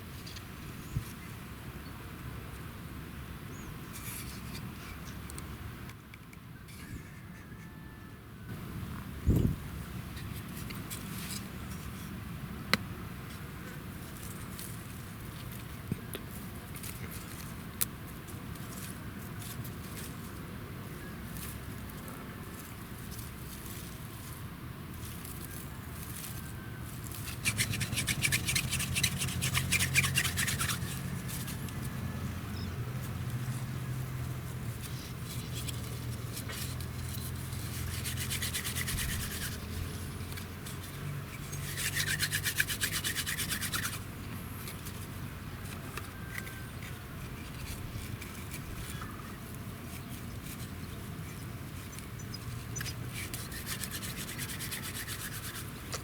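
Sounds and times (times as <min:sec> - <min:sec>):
wooden branch rasping on fibres: 0:25.0 - 0:56.0.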